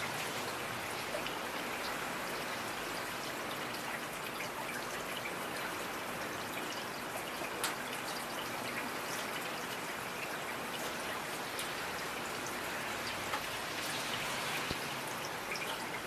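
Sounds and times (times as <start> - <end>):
raindrops hitting a surface: 0.0 - 16.0
rain hissing: 10.8 - 16.0.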